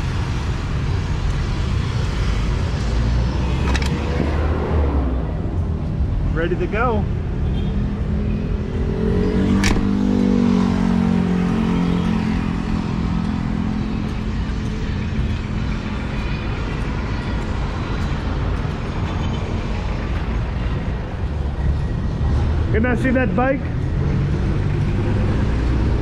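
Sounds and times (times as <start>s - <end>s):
sharp click: 9.6s - 10.0s.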